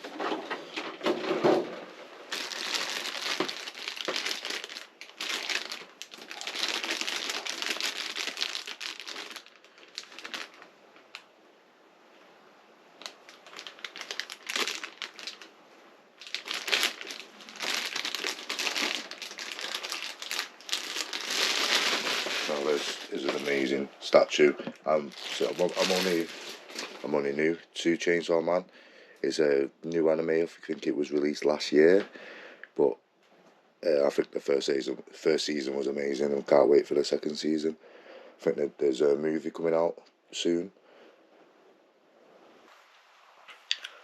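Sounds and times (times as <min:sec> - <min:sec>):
packaging crinkling and rustling: 0:00.0 - 0:11.3, 0:13.0 - 0:15.5, 0:16.2 - 0:27.3.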